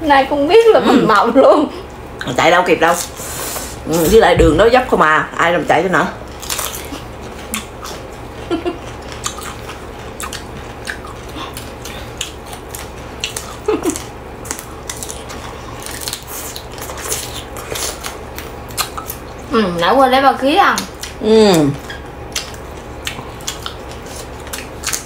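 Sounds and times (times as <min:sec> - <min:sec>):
steady low hum: 0:00.0 - 0:25.0
crunching and chewing vegetables: 0:05.8 - 0:19.8, 0:20.7 - 0:25.0.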